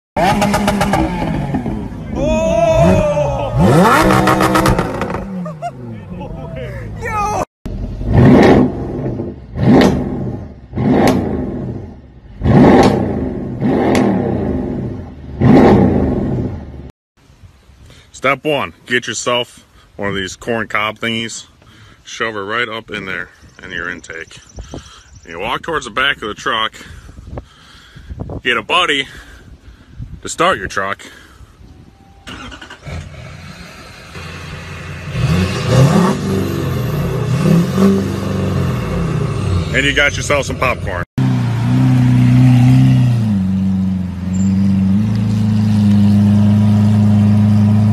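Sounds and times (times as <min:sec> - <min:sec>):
car engine revving: 0:00.2 - 0:02.0, 0:03.6 - 0:05.9, 0:07.7 - 0:16.8, 0:32.3 - 0:47.9.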